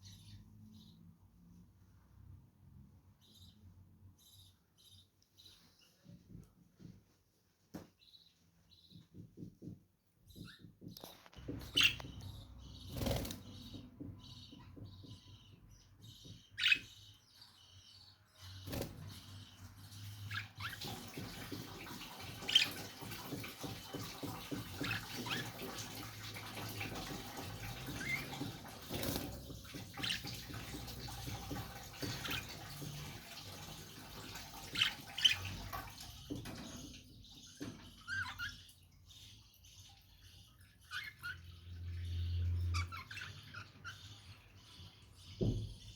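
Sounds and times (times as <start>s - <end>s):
birds chirping: 0.0s - 2.2s, 2.8s - 45.9s.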